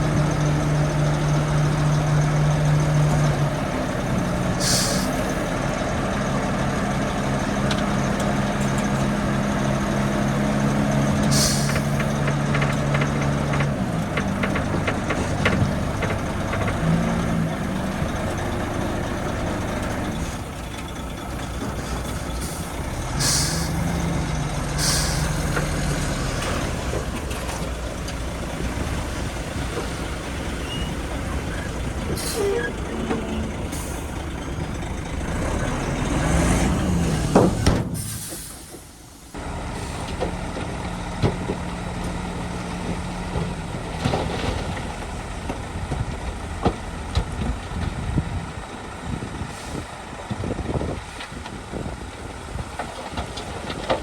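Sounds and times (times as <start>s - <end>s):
dump truck diesel engine: 0.0s - 54.0s
air brake hisses: 4.6s - 5.4s, 11.3s - 11.9s, 22.4s - 23.8s, 24.8s - 25.4s, 32.2s - 32.8s, 37.9s - 40.1s.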